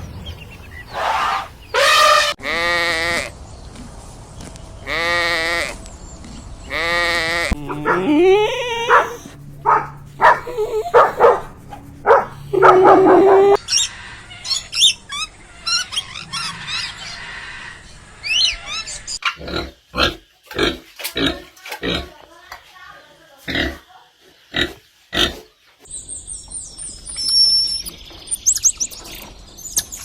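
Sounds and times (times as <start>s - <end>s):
animal bleating: 6.7s - 11.5s, 12.1s - 13.6s
short varied animal calls: 6.8s - 9.3s
high chirping calls: 7.5s - 19.2s, 25.9s - 30.0s.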